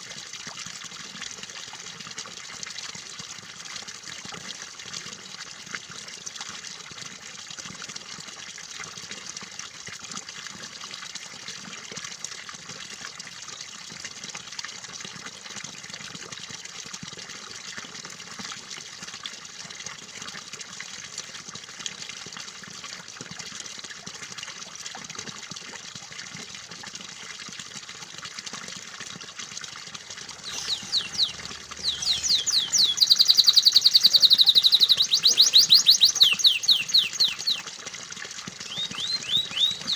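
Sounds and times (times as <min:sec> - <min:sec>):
trickling splashing water: 0:00.0 - 0:39.9
canary trilling: 0:30.4 - 0:37.6, 0:38.7 - 0:39.9.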